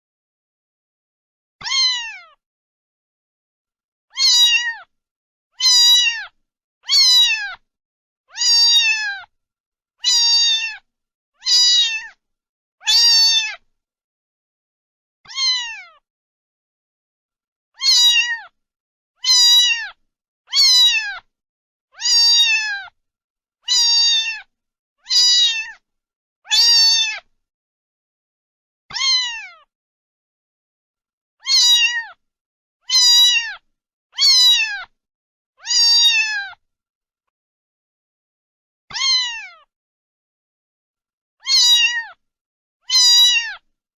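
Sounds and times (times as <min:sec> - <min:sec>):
cat meowing: 0:01.6 - 0:02.4, 0:04.1 - 0:04.9, 0:05.6 - 0:07.6, 0:08.3 - 0:09.3, 0:10.0 - 0:12.2, 0:12.8 - 0:13.6, 0:15.3 - 0:16.0, 0:17.8 - 0:18.6, 0:19.2 - 0:21.3, 0:22.0 - 0:23.0, 0:23.6 - 0:25.8, 0:26.5 - 0:27.3, 0:28.9 - 0:29.7, 0:31.4 - 0:32.2, 0:32.8 - 0:34.9, 0:35.6 - 0:36.6, 0:38.9 - 0:39.7, 0:41.4 - 0:42.2, 0:42.8 - 0:43.7.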